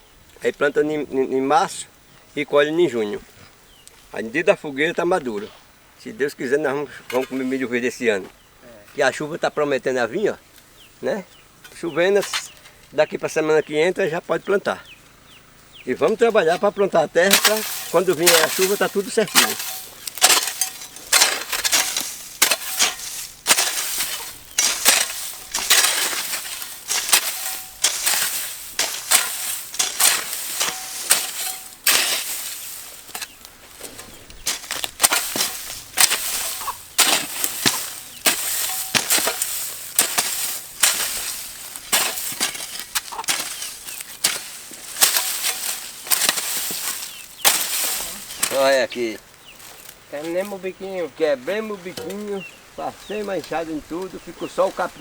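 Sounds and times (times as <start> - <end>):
dry brush crackling: 0.0 - 55.0
hand tool chopping weeds and soil: 10.8 - 13.1, 15.9 - 55.0.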